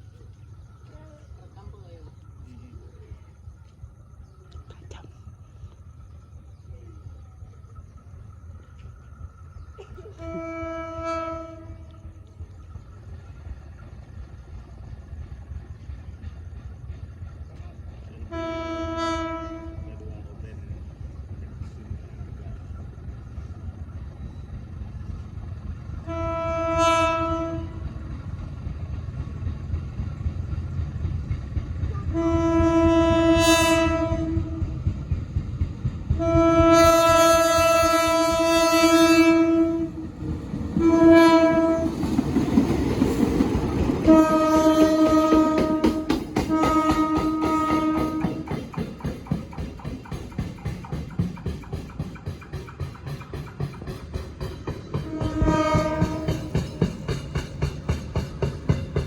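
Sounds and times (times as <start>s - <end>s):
diesel locomotive rumble: 0.0s - 59.0s
train horn blasts: 10.1s - 12.4s, 18.2s - 20.1s, 25.8s - 28.0s, 32.0s - 34.9s, 36.1s - 40.2s, 40.8s - 42.0s, 44.0s - 48.6s, 54.9s - 56.8s.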